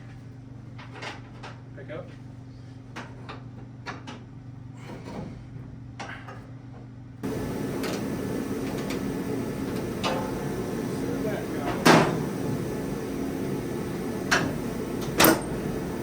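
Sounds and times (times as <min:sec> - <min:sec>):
steady low hum: 0:07.2 - 0:16.0.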